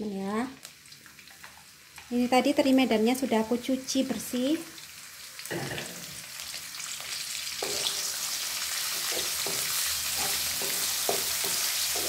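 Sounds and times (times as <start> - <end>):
fish sizzling in oil: 0.0 - 12.0
wooden spatula scraping pan: 7.6 - 8.2, 8.9 - 12.0.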